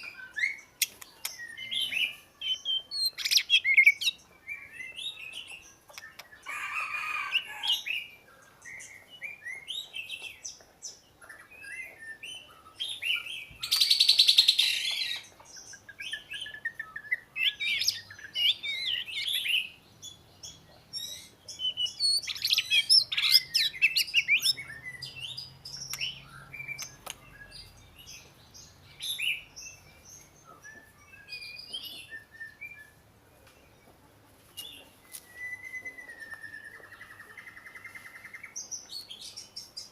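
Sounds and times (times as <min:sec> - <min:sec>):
bird singing whistled phrases: 0:21.2 - 0:27.7, 0:30.5 - 0:33.0, 0:35.1 - 0:37.2.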